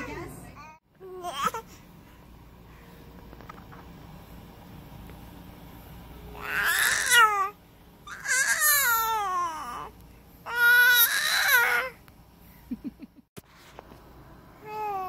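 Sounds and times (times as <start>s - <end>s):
baby crying: 6.4s - 9.9s, 10.5s - 12.0s.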